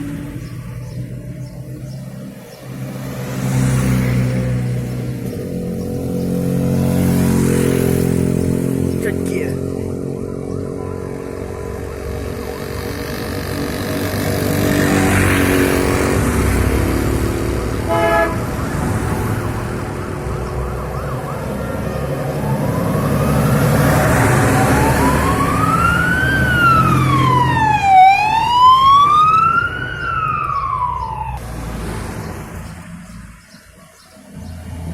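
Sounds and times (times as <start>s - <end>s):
vehicle engines driving past: 0.0s - 34.9s
siren wailing: 9.6s - 15.7s, 19.7s - 31.4s
horn blast: 17.8s - 18.7s.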